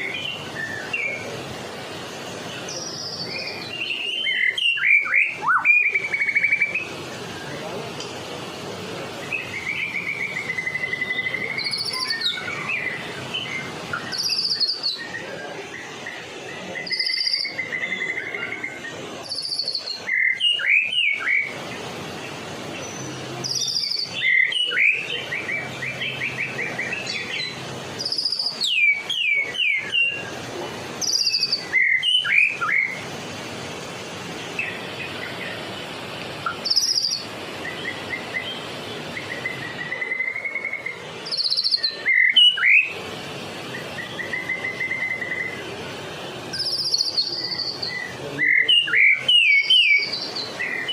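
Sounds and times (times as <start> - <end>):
bird singing trills and whistles: 0.0 - 1.4, 2.4 - 7.7, 9.2 - 21.9, 22.7 - 30.4, 31.0 - 33.0, 36.4 - 45.7, 46.5 - 50.9.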